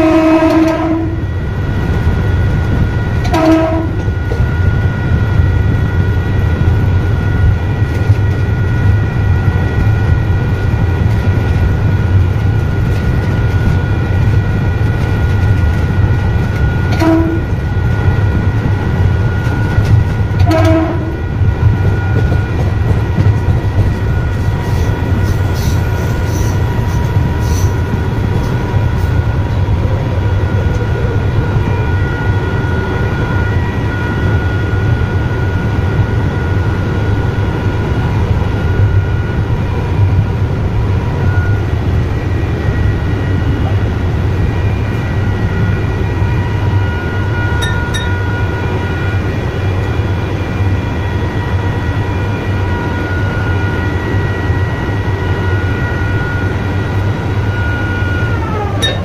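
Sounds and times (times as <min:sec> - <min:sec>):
train low rumble: 0:00.0 - 0:59.0
steady high tones: 0:47.1 - 0:48.8, 0:57.4 - 0:59.0.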